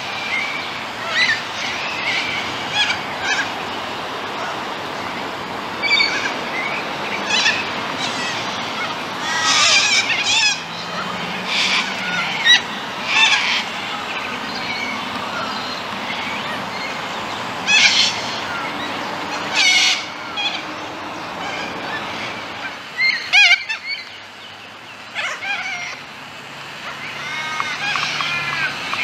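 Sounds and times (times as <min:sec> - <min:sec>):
birds calling: 0:00.0 - 0:29.0
steady background hiss: 0:00.0 - 0:29.0.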